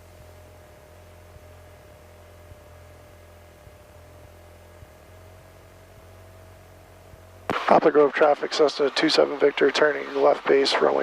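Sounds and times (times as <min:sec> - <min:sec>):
intercom hum and hiss: 0:07.5 - 0:11.0.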